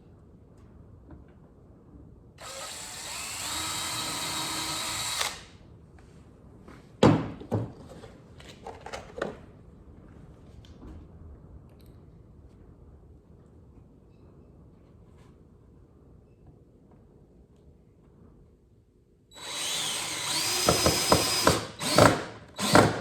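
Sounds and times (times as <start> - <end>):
drill driving screw into wood: 2.4 - 5.5, 19.3 - 23.0.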